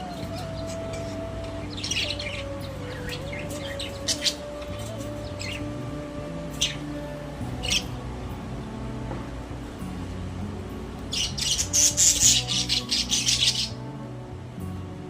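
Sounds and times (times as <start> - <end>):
budgerigars chirping: 0.0 - 8.0, 11.0 - 13.9
soft background music: 0.0 - 15.0.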